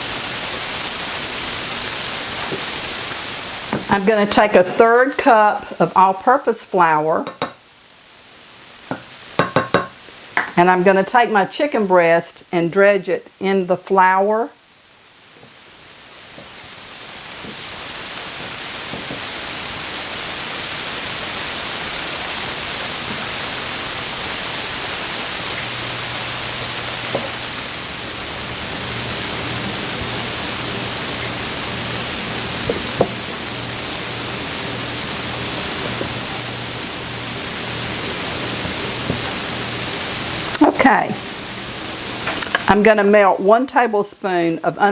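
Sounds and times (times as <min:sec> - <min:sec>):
steady hiss: 0:00.0 - 0:44.9.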